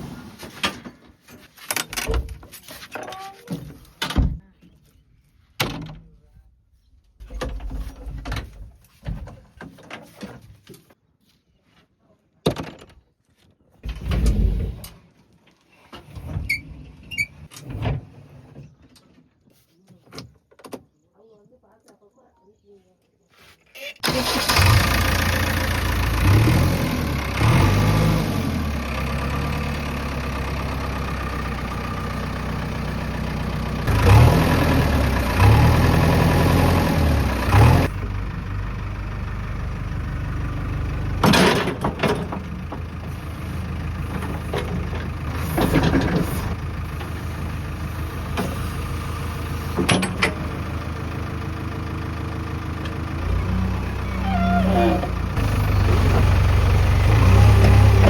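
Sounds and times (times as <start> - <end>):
diesel engine idling and revving: 24.0 - 58.0.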